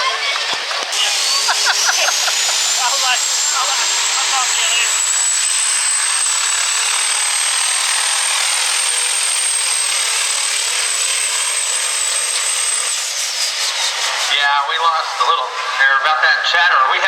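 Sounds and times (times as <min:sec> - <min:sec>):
turbo whistle: 0:00.9 - 0:14.2
diesel truck engine roaring: 0:00.9 - 0:15.8.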